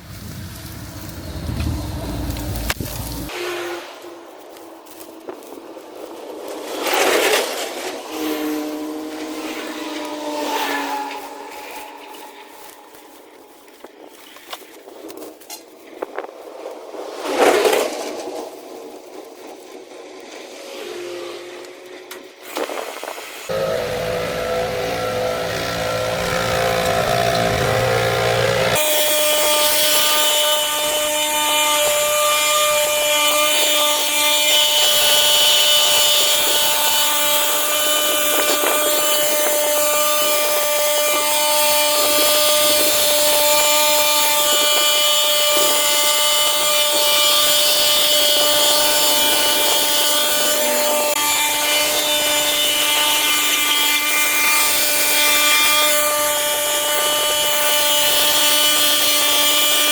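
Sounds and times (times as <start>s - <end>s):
garden power tool whining: 8.0s - 13.4s, 20.9s - 59.9s.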